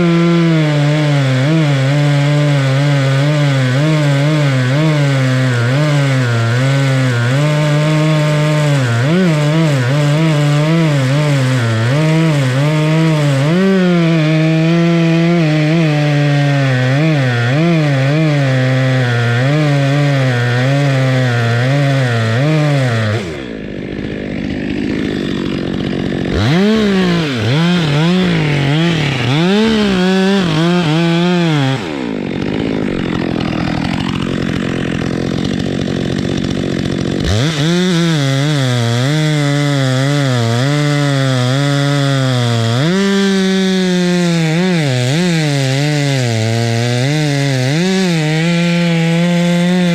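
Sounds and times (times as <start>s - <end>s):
chainsaw cutting wood: 0.0s - 49.9s.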